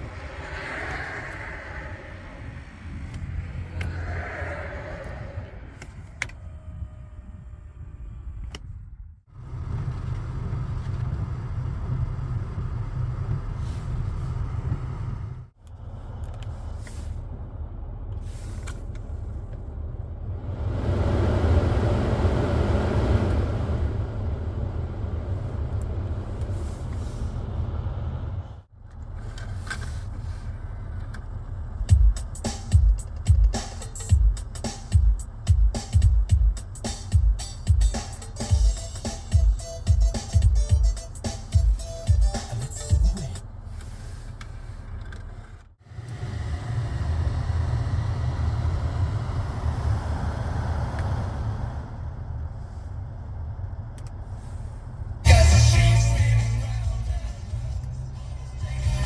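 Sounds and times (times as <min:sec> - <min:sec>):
car engine rumbling: 0:00.0 - 0:59.0
heavy drum beats: 0:31.9 - 0:43.4, 0:55.3 - 0:57.4.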